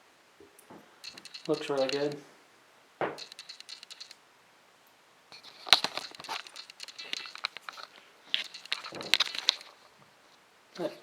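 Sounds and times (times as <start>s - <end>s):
sharp clicks and taps: 0.6s - 2.2s, 3.0s - 4.2s, 5.4s - 9.8s
plastic packaging crinkling: 5.4s - 9.9s.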